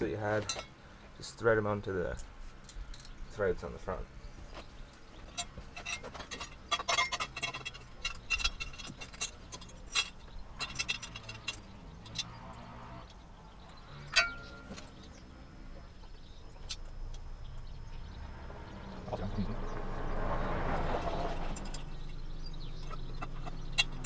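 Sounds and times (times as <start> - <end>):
metal nuts clicking and clinking: 2.1 - 3.2, 4.9 - 13.2, 13.9 - 15.2, 21.4 - 24.0.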